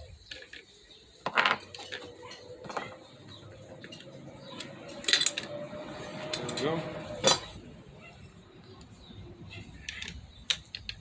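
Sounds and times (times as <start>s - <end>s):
metal parts clinking and rattling: 0.3s - 5.6s, 6.3s - 7.6s, 9.7s - 11.0s.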